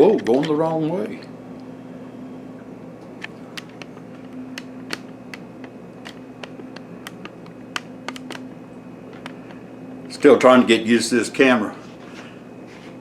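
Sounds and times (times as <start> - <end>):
steady low hum: 0.0 - 13.0
camera handling clicks and taps: 3.6 - 8.5.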